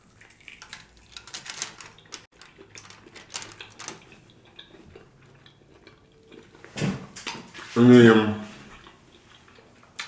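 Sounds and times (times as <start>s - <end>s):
person chewing steak: 2.0s - 6.7s, 8.7s - 10.0s.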